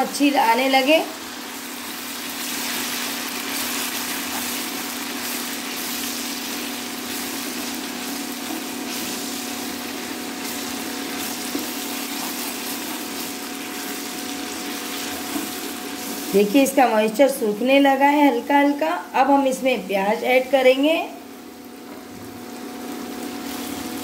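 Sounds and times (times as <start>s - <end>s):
paste sizzling in hot oil: 0.7s - 16.9s.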